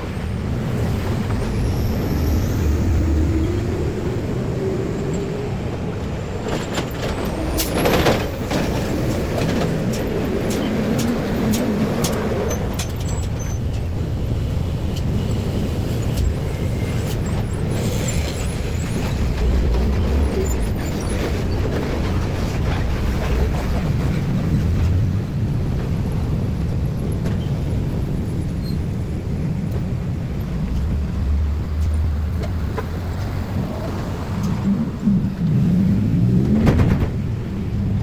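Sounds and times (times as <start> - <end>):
heavy vehicles rumbling past: 0.0 - 38.0
brake hiss and squeal: 0.8 - 3.7, 15.0 - 19.4.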